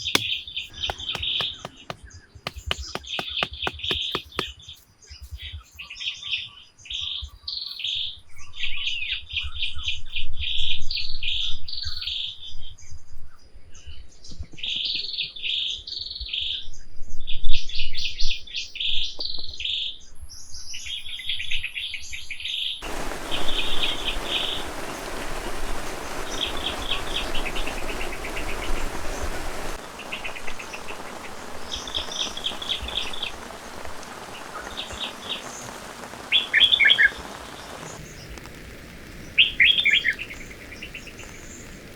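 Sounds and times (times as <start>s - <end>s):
rain hiss: 0.0s - 4.5s, 22.8s - 41.9s
birds chirping: 0.0s - 4.8s, 22.8s - 41.9s.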